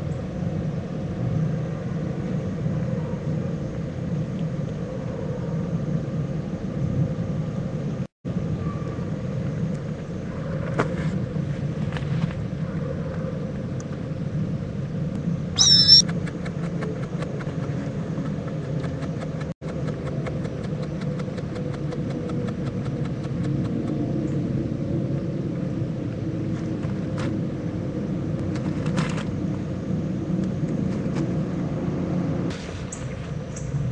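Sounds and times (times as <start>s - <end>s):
steady low rumble: 0.0s - 33.9s
short high-pitched squeal: 15.6s - 16.1s.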